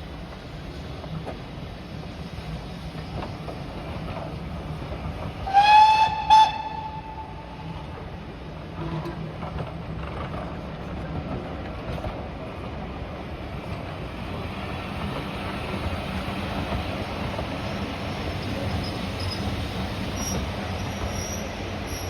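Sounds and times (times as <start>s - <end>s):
train rumbling: 0.0s - 22.0s
steam locomotive whistle: 5.4s - 7.6s.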